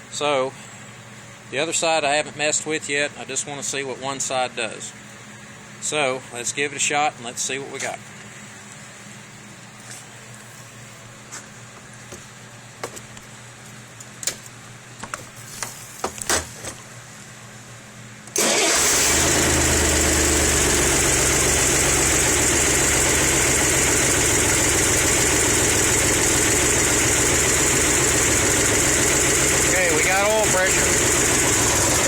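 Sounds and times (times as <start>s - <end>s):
car engine starting and running: 18.3s - 32.0s.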